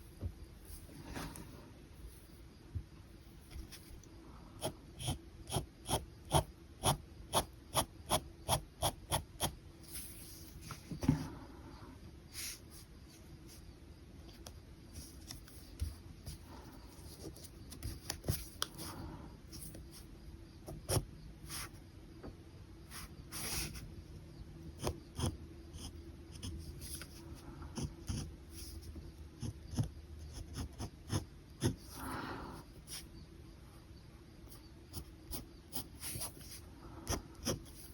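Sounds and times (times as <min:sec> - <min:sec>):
faint steady hum: 0:00.0 - 0:37.9
pen scratching on paper: 0:04.6 - 0:10.2, 0:24.8 - 0:32.0, 0:34.9 - 0:37.9.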